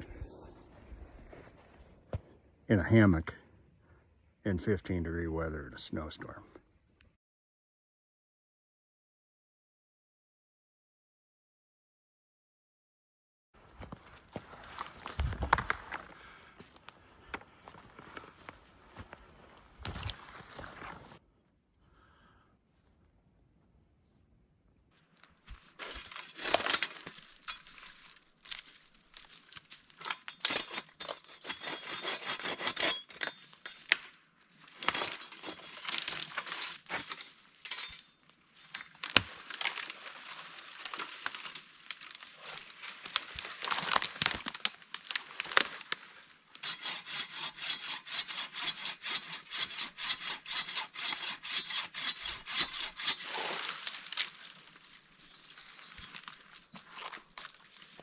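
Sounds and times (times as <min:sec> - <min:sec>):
wood cracking and snapping: 0:13.8 - 0:18.6, 0:25.3 - 0:34.1, 0:34.7 - 0:38.0, 0:38.6 - 0:46.0, 0:52.6 - 0:58.0
hand-saw strokes: 0:30.5 - 0:33.4, 0:46.6 - 0:54.0.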